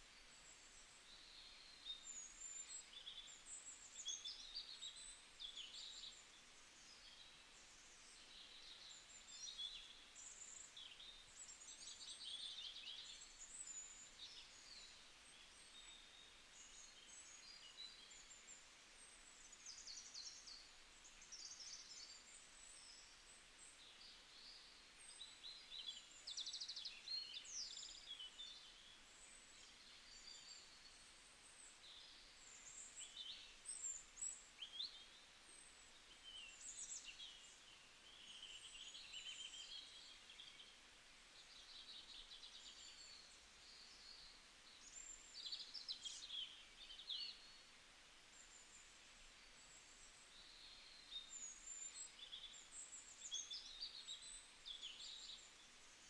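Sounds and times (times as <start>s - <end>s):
low steady hiss: 0.0s - 56.0s.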